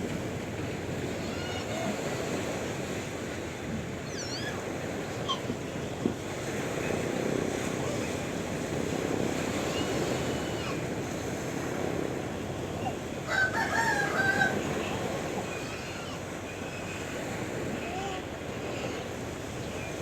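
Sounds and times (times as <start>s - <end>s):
sea waves washing: 0.0s - 20.0s
rooster crowing: 13.2s - 14.7s.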